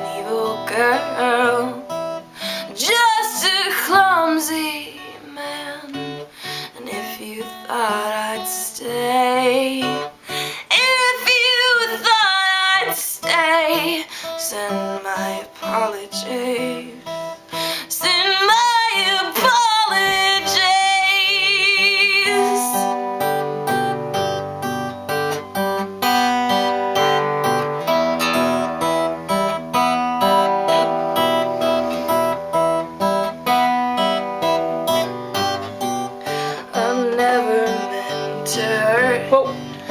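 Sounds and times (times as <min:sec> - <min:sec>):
woman singing: 0:00.0 - 0:23.6, 0:35.4 - 0:39.9
acoustic guitar strumming: 0:00.0 - 0:39.9.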